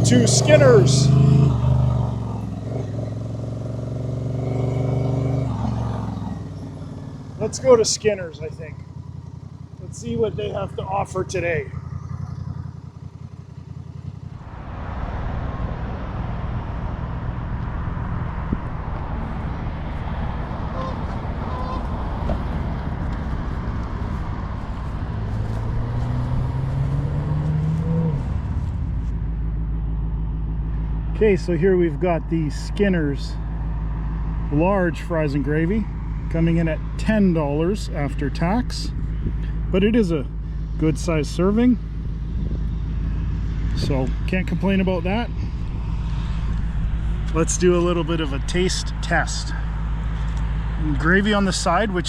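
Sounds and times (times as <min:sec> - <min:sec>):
motorcycle engine running: 0:00.0 - 0:52.0
wind rush: 0:14.5 - 0:27.2, 0:41.8 - 0:44.1, 0:45.2 - 0:47.6.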